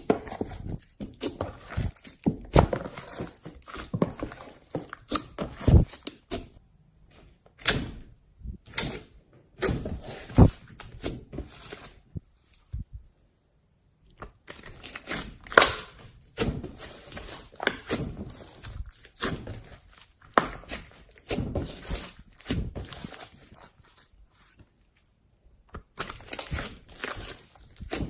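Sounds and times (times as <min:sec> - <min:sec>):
slime crackling and squelching: 0:00.0 - 0:06.6, 0:14.3 - 0:28.0.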